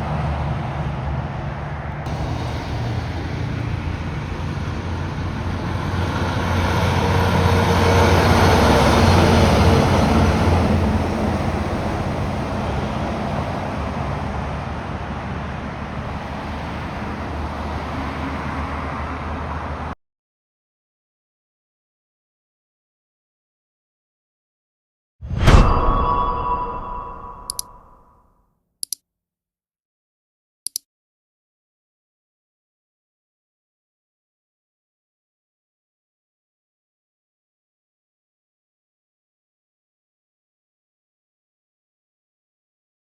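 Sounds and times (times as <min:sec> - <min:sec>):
heavy truck driving past: 0:00.0 - 0:20.0.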